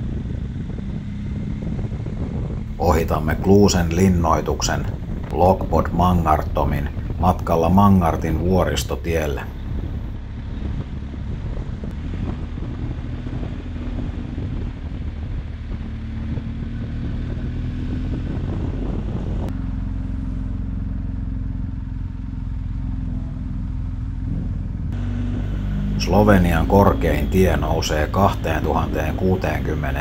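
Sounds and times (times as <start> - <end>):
motorcycle engine running: 0.0 - 8.7, 9.5 - 30.0
road and wind noise: 0.0 - 30.0.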